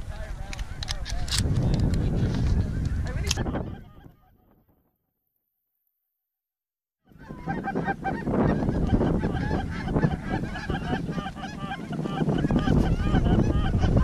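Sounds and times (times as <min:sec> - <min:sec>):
geese honking: 0:07.1 - 0:14.0.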